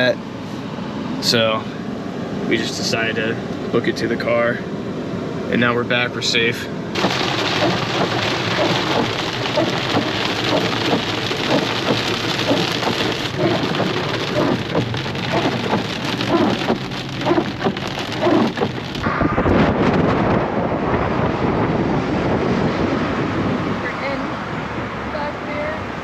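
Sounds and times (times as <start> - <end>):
low rumble: 6.9 - 24.7
hard rain on a surface: 6.9 - 26.0.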